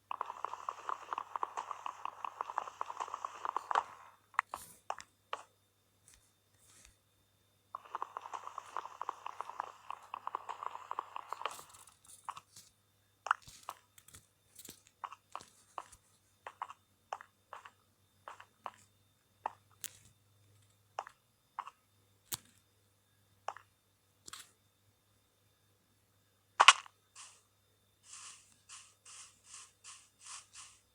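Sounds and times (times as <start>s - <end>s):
close crackling: 0.1s - 4.2s, 7.8s - 12.4s, 26.6s - 27.4s
sharp crunches and clicks: 26.6s - 27.4s.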